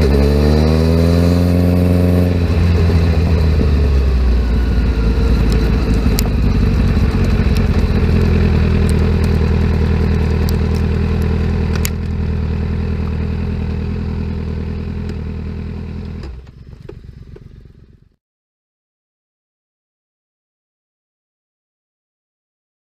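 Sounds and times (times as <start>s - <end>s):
motorcycle engine idling: 2.3s - 18.2s.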